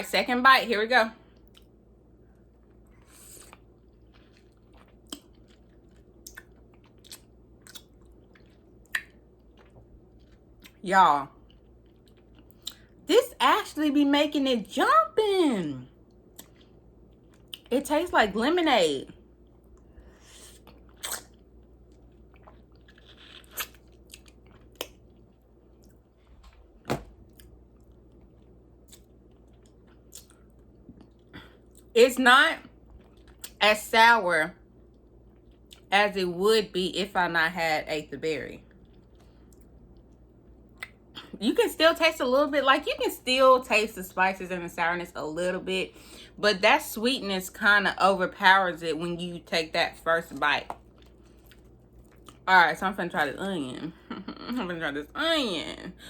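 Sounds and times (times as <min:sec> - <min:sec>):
person chewing lemon: 0:01.4 - 0:10.8, 0:11.4 - 0:13.0, 0:16.0 - 0:17.7, 0:19.3 - 0:31.9, 0:32.7 - 0:33.6, 0:34.7 - 0:35.9, 0:38.6 - 0:41.2, 0:50.7 - 0:52.4
wet mouth clicks: 0:20.6 - 0:21.4, 0:40.8 - 0:41.0.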